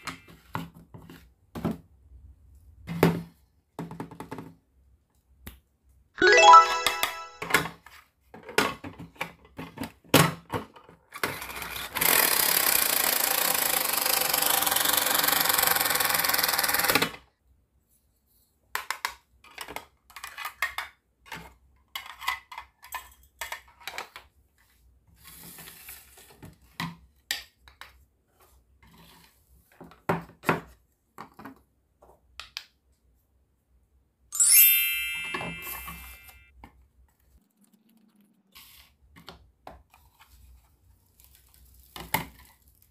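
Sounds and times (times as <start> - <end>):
electronic chime: 6.2 - 7.6, 34.4 - 36.5.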